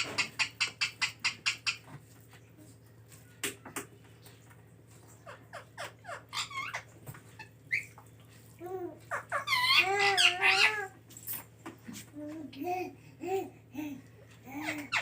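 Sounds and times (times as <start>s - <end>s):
parrot calling: 5.2s - 8.0s, 9.0s - 10.9s, 14.6s - 15.0s.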